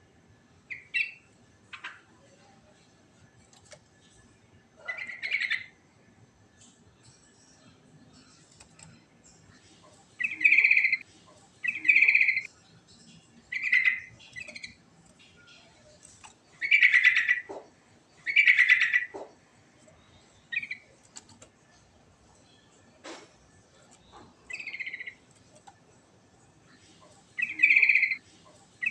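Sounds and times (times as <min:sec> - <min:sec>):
bird singing bubbling phrases: 0:10.2 - 0:11.0, 0:11.6 - 0:12.5, 0:13.1 - 0:17.5, 0:18.2 - 0:19.1, 0:20.0 - 0:21.0, 0:24.4 - 0:25.2, 0:27.4 - 0:28.2.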